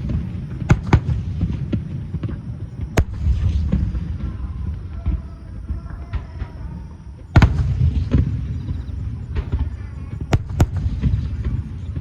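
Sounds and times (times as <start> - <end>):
fireworks bursting: 0.0 - 12.0
low rumble of booms: 0.0 - 12.0.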